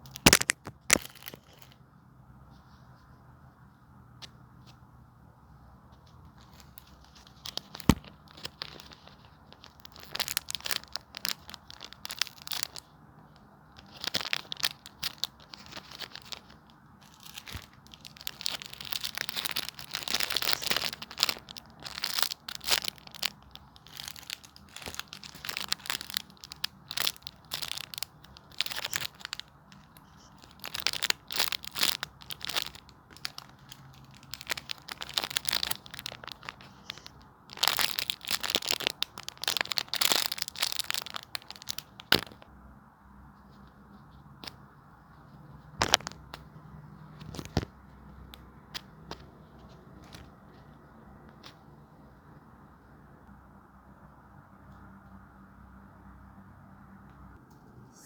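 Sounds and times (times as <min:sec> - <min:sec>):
squishies crinkling and crunching: 0:00.0 - 0:01.8, 0:06.2 - 0:42.5, 0:45.5 - 0:51.6.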